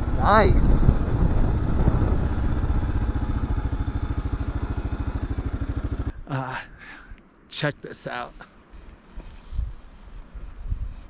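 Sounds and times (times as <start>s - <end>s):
motorcycle engine running: 0.0s - 6.1s.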